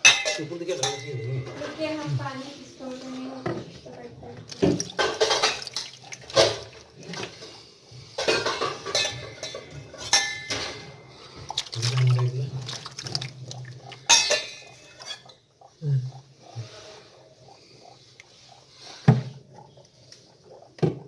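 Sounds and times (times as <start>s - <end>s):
dishes and utensils clinking: 0.0s - 2.0s, 4.6s - 7.4s, 8.2s - 11.1s, 14.0s - 15.3s.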